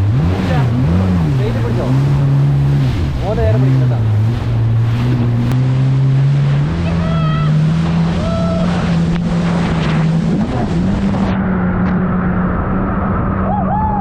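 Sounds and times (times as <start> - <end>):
jet ski engine running: 0.0 - 14.0
rushing water: 0.0 - 14.0.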